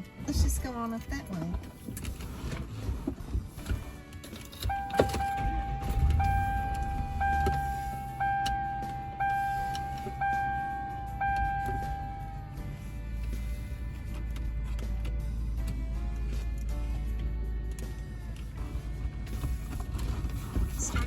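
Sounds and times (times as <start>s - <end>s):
car engine humming: 0.0s - 21.0s
car warning chime: 4.6s - 12.8s.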